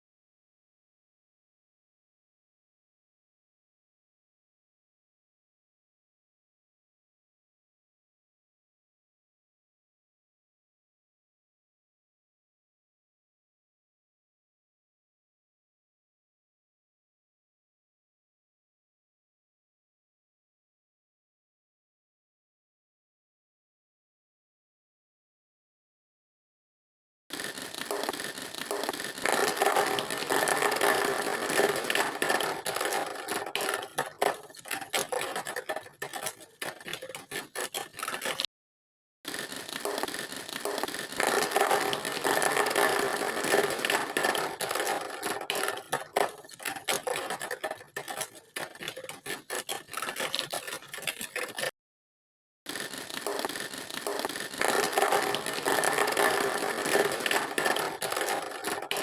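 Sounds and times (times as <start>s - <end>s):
mechanical scraping and rattling: 27.3s - 38.5s, 39.3s - 51.7s, 52.7s - 59.0s.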